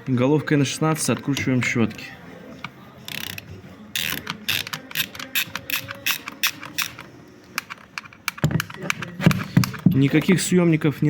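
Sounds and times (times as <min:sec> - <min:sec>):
ratchet wrench clicking: 0:03.1 - 0:09.0.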